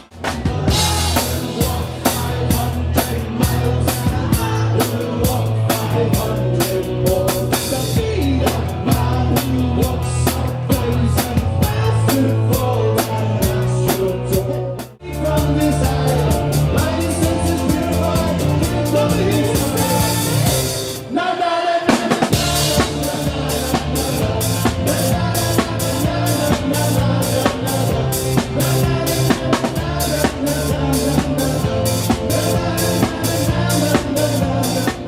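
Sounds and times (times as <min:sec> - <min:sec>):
rock band music: 0:00.0 - 0:35.0.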